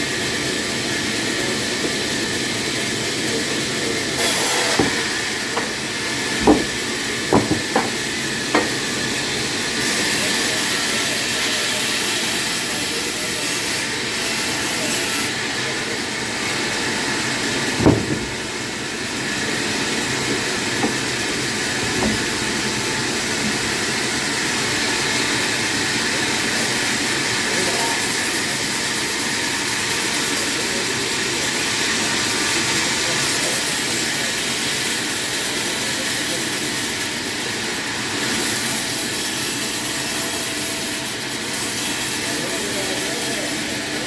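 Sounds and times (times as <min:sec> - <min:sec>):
sharp knock: 0:04.7 - 0:05.8, 0:06.4 - 0:08.8, 0:17.8 - 0:18.4.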